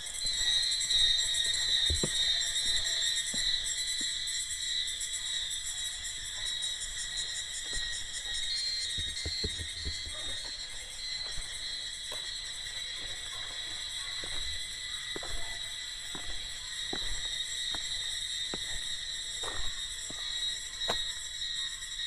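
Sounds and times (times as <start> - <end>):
insects droning: 0.0 - 22.0
soft knocks: 9.0 - 10.2.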